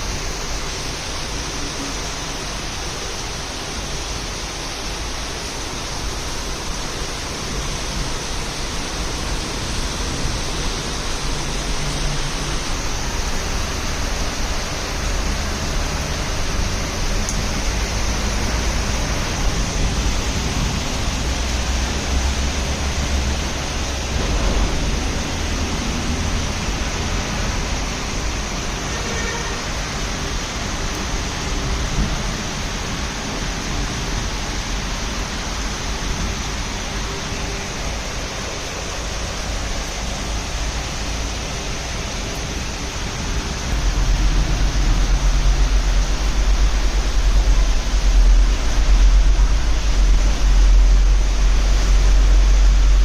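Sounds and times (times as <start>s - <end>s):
heavy rain pouring: 0.0s - 53.0s
low rumble: 43.4s - 53.0s.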